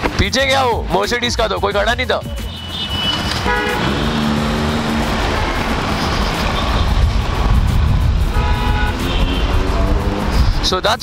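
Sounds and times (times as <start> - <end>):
background music: 0.0 - 11.0
motorcycle engine: 2.5 - 10.4
wind on microphone: 3.8 - 10.7.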